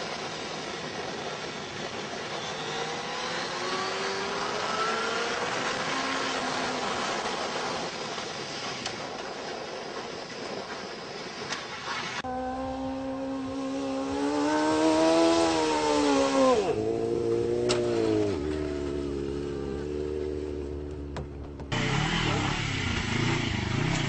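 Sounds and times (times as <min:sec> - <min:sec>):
wind and road noise: 0:00.0 - 0:24.0
vehicle engine accelerating: 0:12.2 - 0:24.0.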